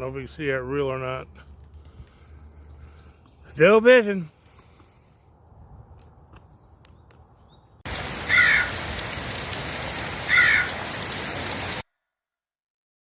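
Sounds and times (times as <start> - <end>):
rushing water: 7.8 - 11.8.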